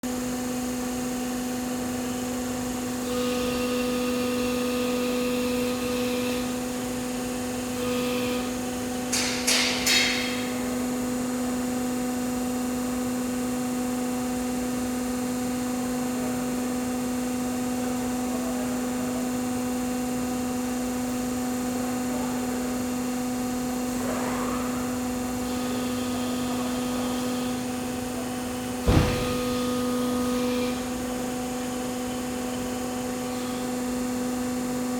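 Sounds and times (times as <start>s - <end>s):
hydraulic press hum: 2.4s - 12.4s, 22.7s - 34.7s
loud thump: 28.8s - 29.8s.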